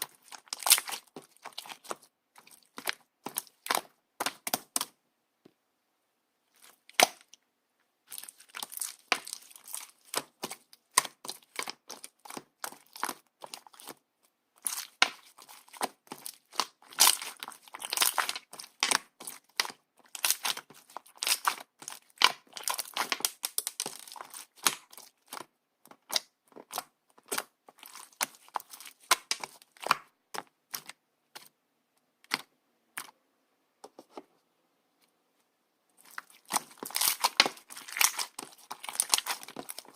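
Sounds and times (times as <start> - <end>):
slime being squished by hand: 0.0 - 5.0, 8.1 - 14.0, 14.6 - 31.5, 36.0 - 39.9.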